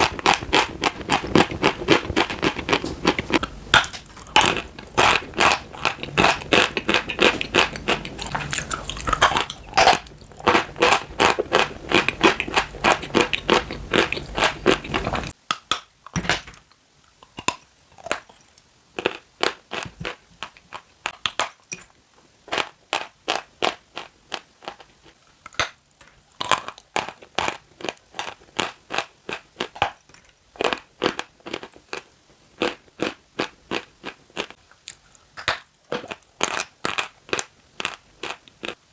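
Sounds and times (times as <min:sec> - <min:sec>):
chalk crunching being chewed: 0:00.0 - 0:15.4.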